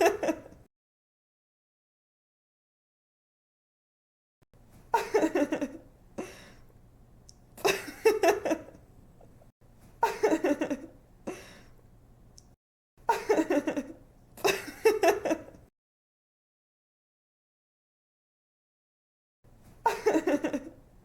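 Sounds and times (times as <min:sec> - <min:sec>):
woman giggling: 0:00.0 - 0:00.6, 0:04.9 - 0:06.3, 0:07.6 - 0:08.8, 0:10.0 - 0:11.5, 0:13.1 - 0:15.6, 0:19.8 - 0:20.8
woman breathing: 0:06.2 - 0:06.7, 0:11.3 - 0:11.8.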